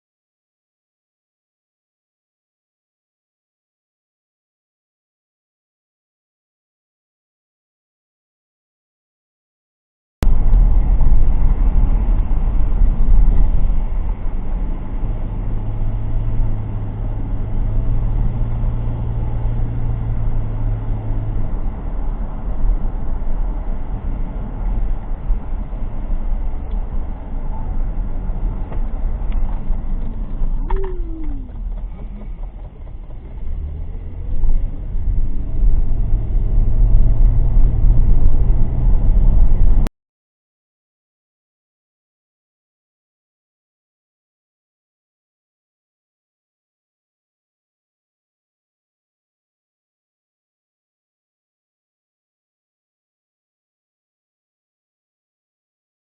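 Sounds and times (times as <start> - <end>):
car road and engine rumble: 10.2 - 39.9.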